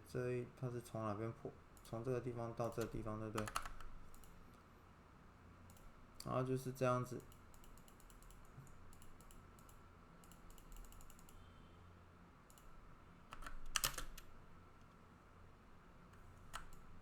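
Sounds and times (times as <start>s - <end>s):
faint steady hum: 0.0s - 17.0s
keyboard and mouse clicking: 2.6s - 4.4s, 5.7s - 6.3s, 7.2s - 11.4s, 12.5s - 12.7s, 13.3s - 15.0s, 16.4s - 16.9s.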